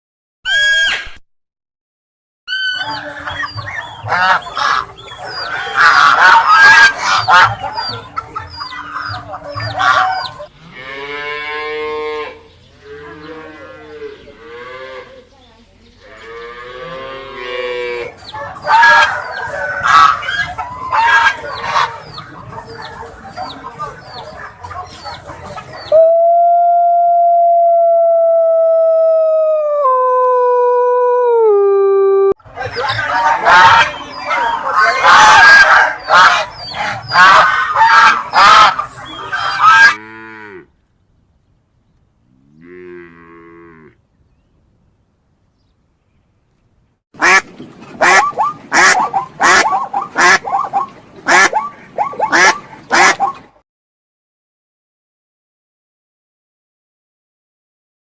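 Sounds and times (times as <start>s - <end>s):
duck quacking loudly: 2.5s - 8.0s, 19.8s - 22.1s, 32.7s - 40.1s, 47.2s - 53.5s
chickens clucking: 2.5s - 10.5s, 18.0s - 26.0s, 32.4s - 40.0s, 47.2s - 53.6s
dog howling: 25.9s - 32.3s.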